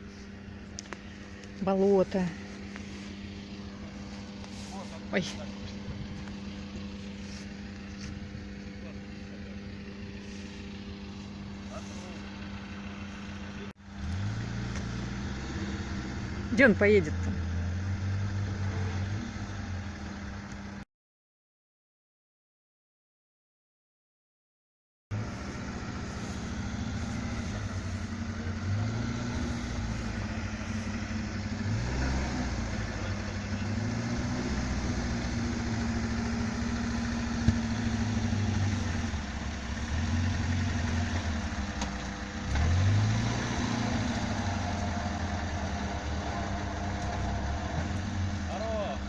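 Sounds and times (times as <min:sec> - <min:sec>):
engine revving: 0:00.0 - 0:20.8, 0:25.1 - 0:49.0.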